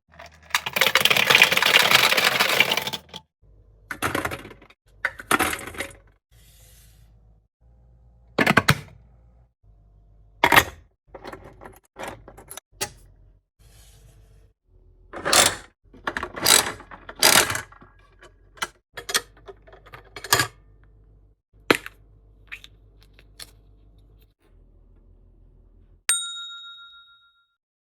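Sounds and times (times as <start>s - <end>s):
lottery machine clicking and rattling: 0.1s - 3.2s
bell ding: 26.1s - 27.6s.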